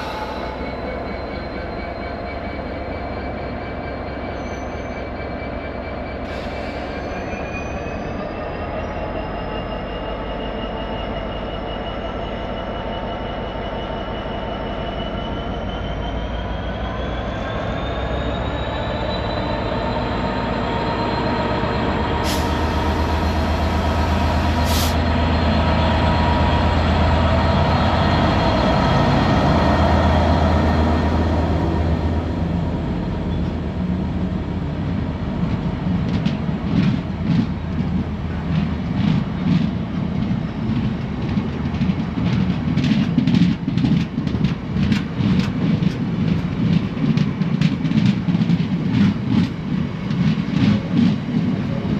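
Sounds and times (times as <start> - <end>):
train engine drone: 0.0 - 51.9
train wheels clattering over rail joints: 35.4 - 51.9.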